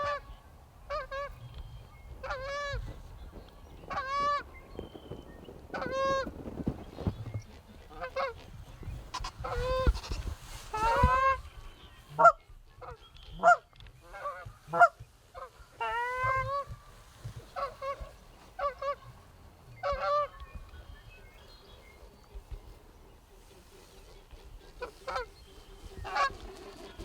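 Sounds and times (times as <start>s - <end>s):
goose honking: 5.8s - 6.3s, 12.2s - 16.7s, 17.6s - 19.2s, 19.8s - 20.3s, 24.6s - 25.4s, 26.0s - 27.0s
goose clucks: 12.2s - 16.7s, 24.6s - 25.3s, 26.0s - 27.0s.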